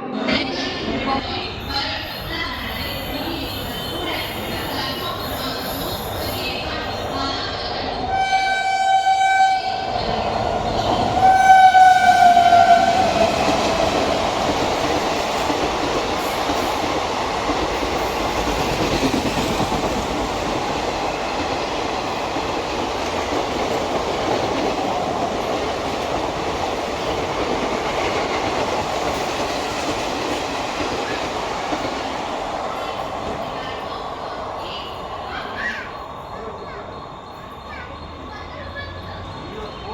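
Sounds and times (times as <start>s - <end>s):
train wheels roaring on rails: 0.0s - 39.9s
train horn blasts: 8.1s - 10.3s, 11.2s - 13.5s.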